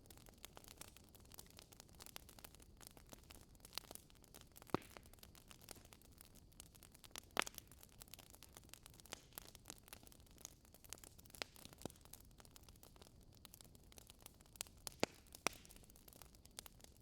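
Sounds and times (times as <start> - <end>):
wood crackling in a fire: 0.0 - 17.0
sharp pops of burning wood: 0.2 - 16.9.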